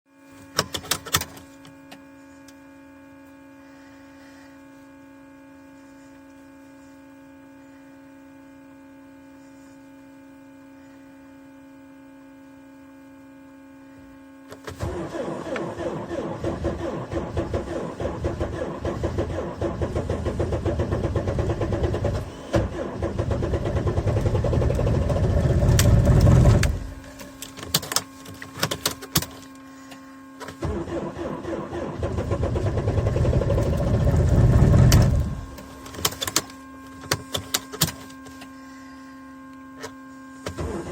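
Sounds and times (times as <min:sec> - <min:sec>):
steady hum: 0:00.1 - 0:40.9
diesel engine cranking and running: 0:14.7 - 0:29.5, 0:30.4 - 0:38.4.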